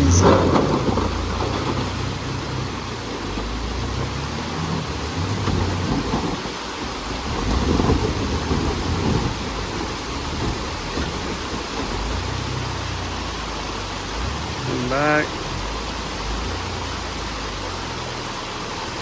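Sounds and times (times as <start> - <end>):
wind buffeting microphone: 0.0 - 13.0
engine running under load: 0.0 - 19.0.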